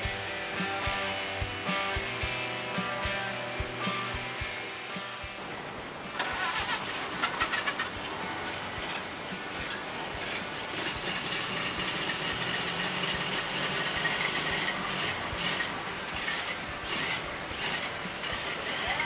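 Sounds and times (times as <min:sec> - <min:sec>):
car engine running roughly: 0:05.4 - 0:19.0.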